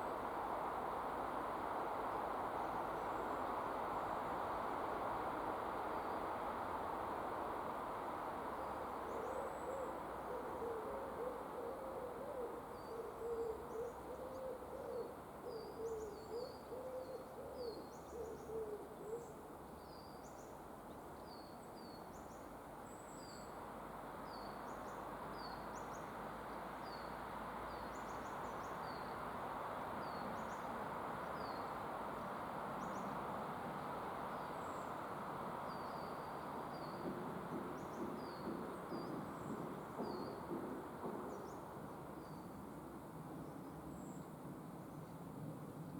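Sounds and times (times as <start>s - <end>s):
low wavering hoot-like bird call: 9.1s - 19.4s.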